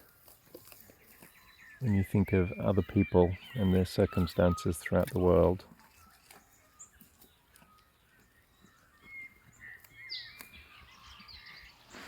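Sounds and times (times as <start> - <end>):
faint birds chirping and warbling: 0.0 - 12.0.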